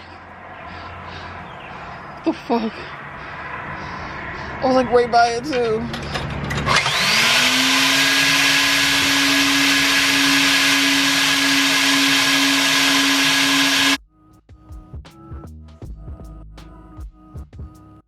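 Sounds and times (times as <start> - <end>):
vacuum suction rushing: 6.1 - 14.0
music with a beat: 14.0 - 18.0.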